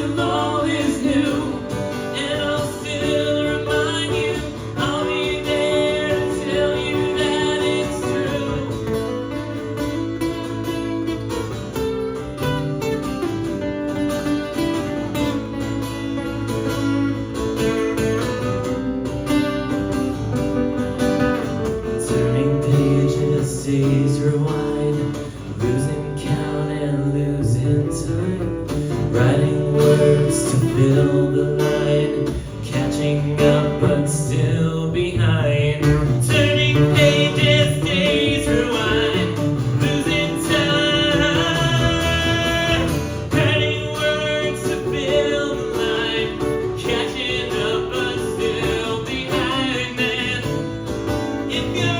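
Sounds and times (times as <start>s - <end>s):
person singing: 0.0s - 10.6s, 22.0s - 51.9s
acoustic guitar strumming: 0.0s - 51.9s.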